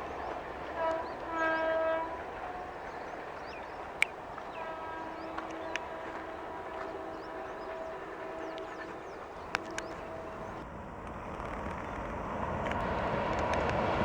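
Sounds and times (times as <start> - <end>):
train horn blasts: 0.0 - 10.6.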